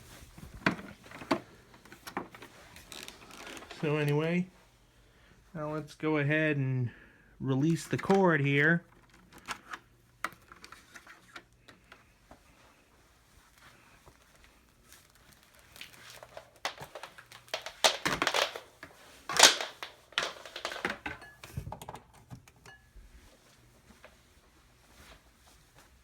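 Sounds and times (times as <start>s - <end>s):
power cord rustling and clicking: 0.4s - 4.3s, 8.9s - 12.1s, 15.8s - 22.6s.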